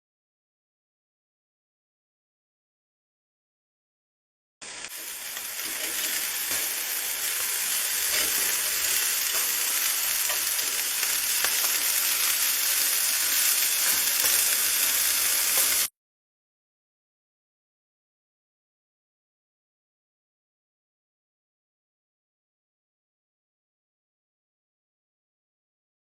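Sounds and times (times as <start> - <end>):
chicken pieces sizzling: 4.6 - 15.9.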